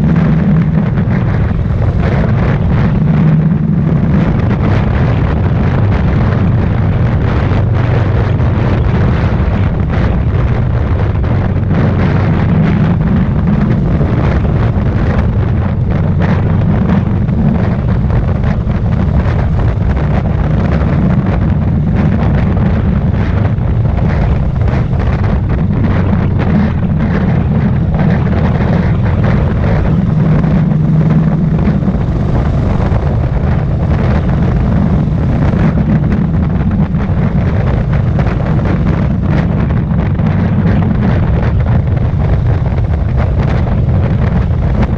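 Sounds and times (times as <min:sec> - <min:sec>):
motorcycle engine running: 0:00.0 - 0:44.9
wind noise on microphone: 0:00.0 - 0:44.9.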